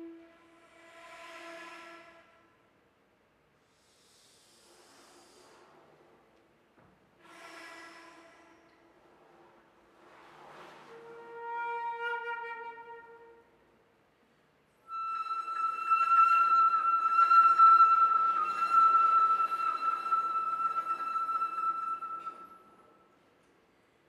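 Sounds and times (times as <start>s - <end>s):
flute notes: 0.0s - 2.5s, 10.8s - 13.6s, 14.8s - 23.2s.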